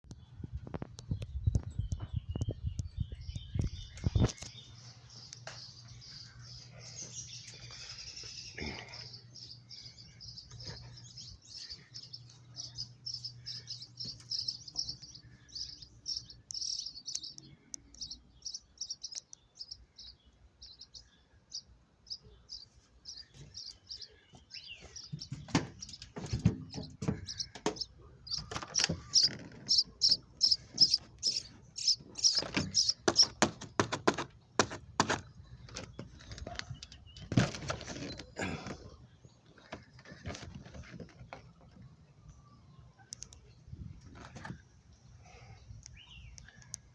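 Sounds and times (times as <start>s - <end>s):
small bird chirping: 0.1s - 33.9s
sharp knocks: 32.2s - 35.2s.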